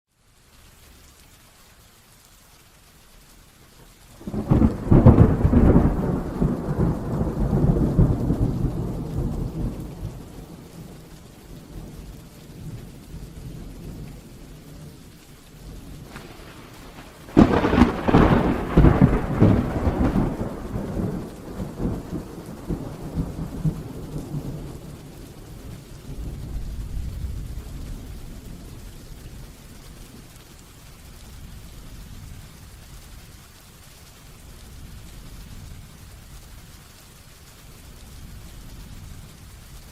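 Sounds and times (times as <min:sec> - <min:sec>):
heavy rain: 0:00.1 - 0:39.9
thunderclaps: 0:04.2 - 0:32.8.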